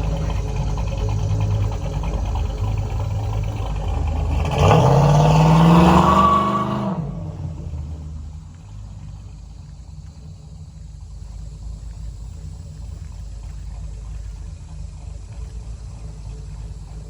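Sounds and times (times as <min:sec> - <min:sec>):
vehicle engine idling and revving: 0:00.0 - 0:17.0.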